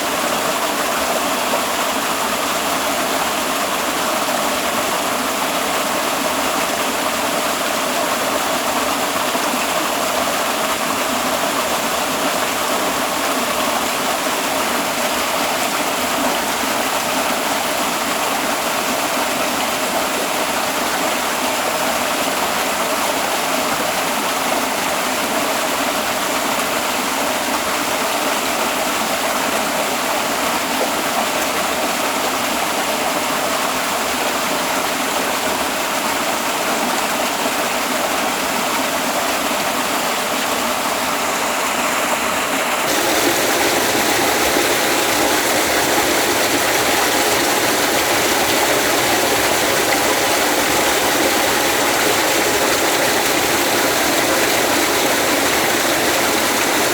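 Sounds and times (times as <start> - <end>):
waterfall rushing: 42.9 - 56.9.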